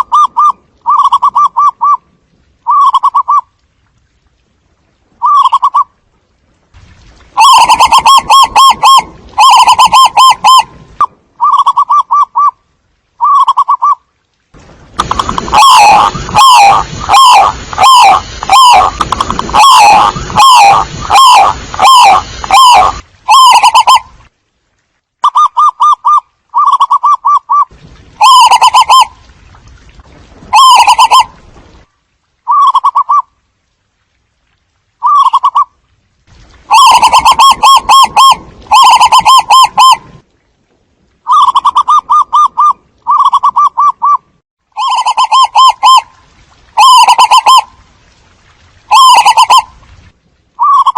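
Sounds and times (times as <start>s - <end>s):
doves cooing: 15.0s - 24.0s, 36.7s - 40.0s.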